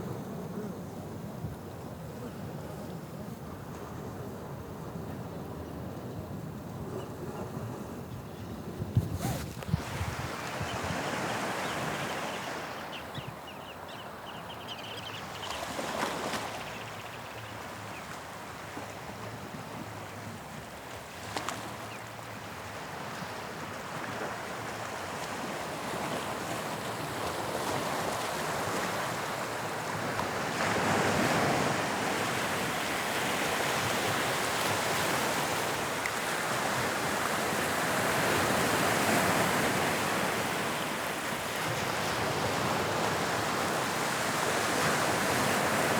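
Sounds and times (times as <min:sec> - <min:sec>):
sea waves breaking on shore: 0:09.0 - 0:12.9, 0:23.0 - 0:45.9.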